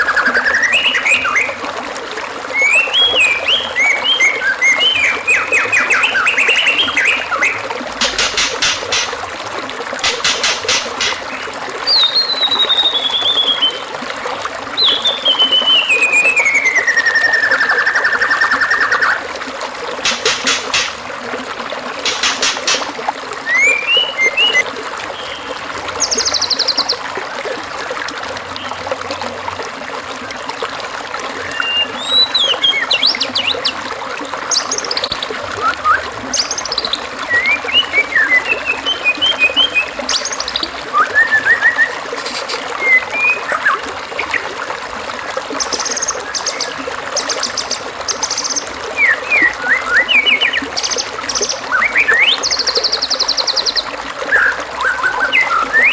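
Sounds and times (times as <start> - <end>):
trickle of running water: 0.0 - 55.9
songbird calls: 2.6 - 9.2, 10.0 - 13.9, 14.8 - 19.2, 20.0 - 21.0, 22.0 - 27.0, 31.4 - 33.8, 34.5 - 44.4, 45.6 - 55.9.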